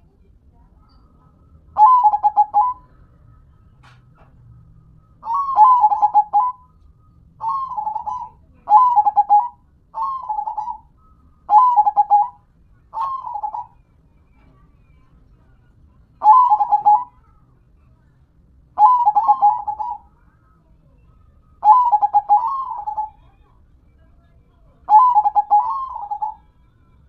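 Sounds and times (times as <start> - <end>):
dove cooing: 1.8 - 3.0, 5.2 - 6.6, 7.4 - 10.9, 11.5 - 13.8, 16.2 - 17.2, 18.8 - 20.1, 21.6 - 23.4, 24.9 - 26.5.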